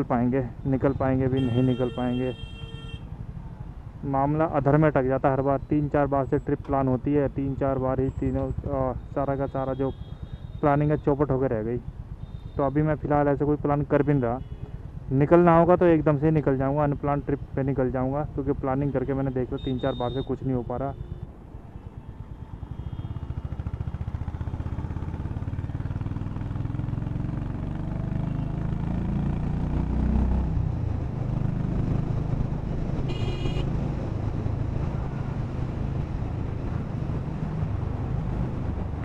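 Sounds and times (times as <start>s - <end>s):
vehicle horn: 0.9s - 3.1s, 19.6s - 21.3s, 22.7s - 23.3s, 33.1s - 33.7s
motorcycle engine revving: 22.7s - 39.0s.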